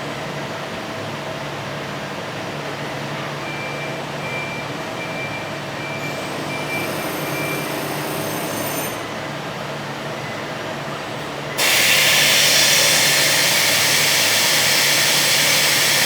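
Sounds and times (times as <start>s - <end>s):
short warning beeps: 3.4s - 8.8s.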